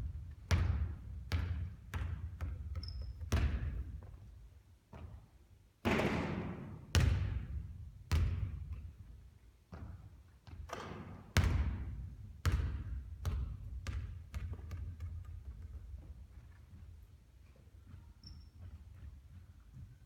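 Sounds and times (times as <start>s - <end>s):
basketball bouncing with echo: 0.0s - 4.3s, 5.9s - 9.1s, 9.7s - 16.6s.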